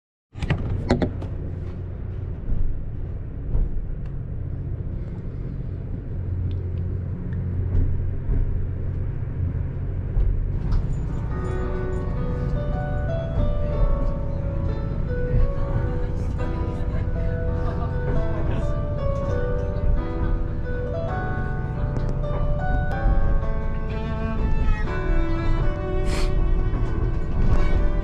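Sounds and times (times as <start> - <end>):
train rumble from inside: 0.4 - 28.0
soft plucked background music: 6.4 - 28.0.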